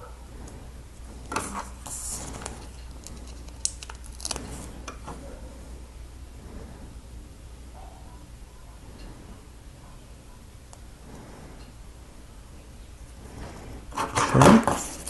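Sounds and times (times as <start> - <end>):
steady low hum: 0.0 - 15.0
sticker sheet crinkling: 1.4 - 4.7.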